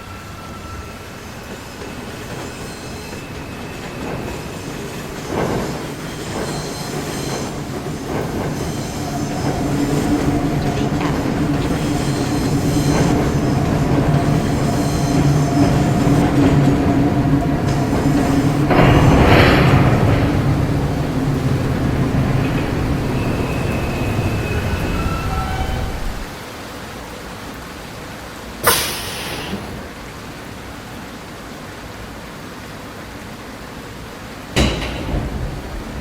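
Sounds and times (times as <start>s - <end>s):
train hum: 0.0s - 26.4s, 28.6s - 31.0s
subway train approaching: 0.0s - 36.0s
wheels clacking over rail joints: 1.4s - 26.4s, 34.5s - 36.0s.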